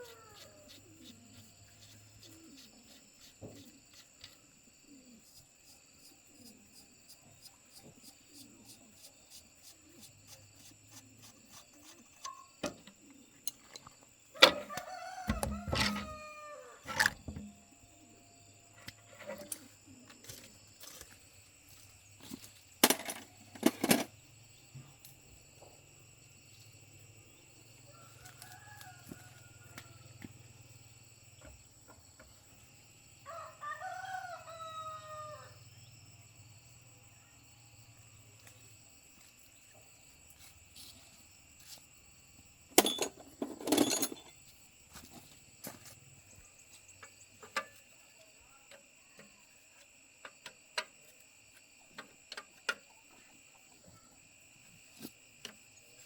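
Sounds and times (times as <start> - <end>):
rooster crowing: 0.0 - 0.8, 14.4 - 16.9, 27.9 - 30.2, 33.2 - 35.6.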